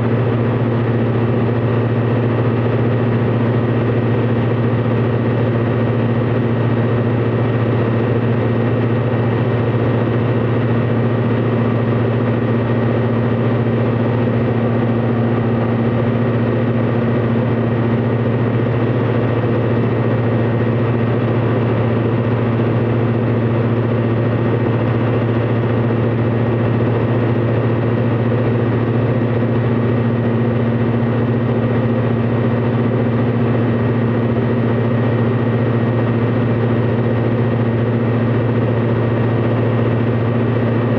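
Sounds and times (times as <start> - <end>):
aircraft piston engine drone: 0.0 - 40.9.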